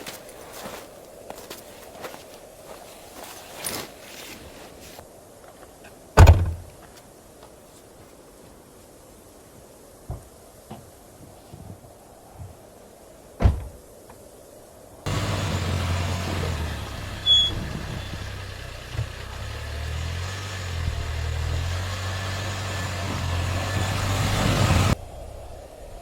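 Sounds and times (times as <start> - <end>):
sharp thump: 6.2 - 6.7
vehicle engine running: 15.1 - 25.0.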